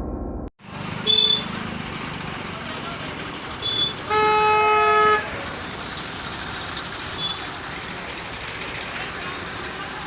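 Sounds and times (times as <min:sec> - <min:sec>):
vehicle horn blast: 0:01.0 - 0:01.5, 0:03.6 - 0:05.5.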